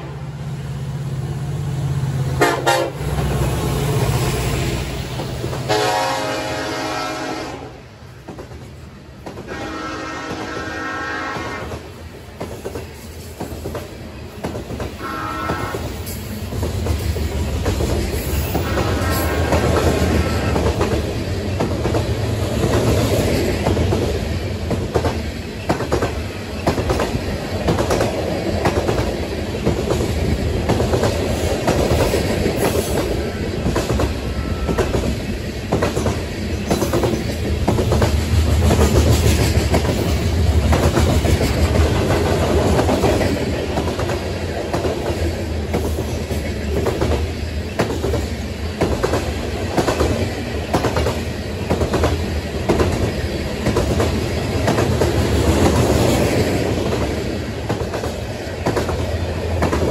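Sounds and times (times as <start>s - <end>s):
freight train rumble: 0.0s - 59.9s.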